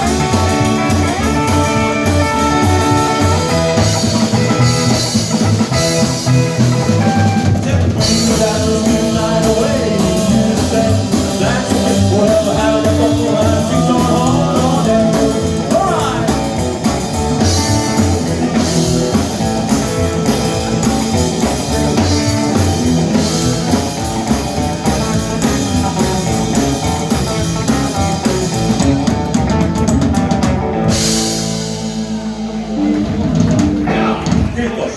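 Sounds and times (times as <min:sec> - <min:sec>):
electric guitar: 0:00.0 - 0:34.6
drum kit: 0:00.0 - 0:34.9.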